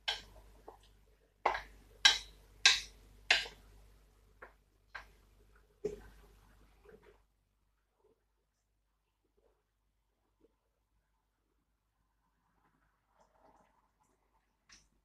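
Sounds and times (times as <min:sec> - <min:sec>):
utensil knocking on cookware: 0:01.5 - 0:03.6.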